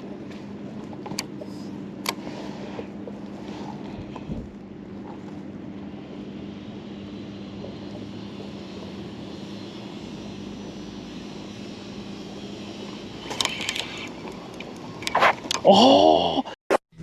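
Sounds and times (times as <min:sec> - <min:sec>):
boat motor humming: 0:00.0 - 0:15.9
rattle of clicks: 0:13.2 - 0:15.6.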